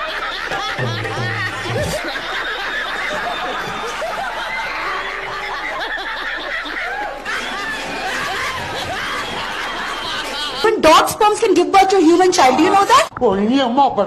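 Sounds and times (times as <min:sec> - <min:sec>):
people laughing: 0:00.0 - 0:11.4.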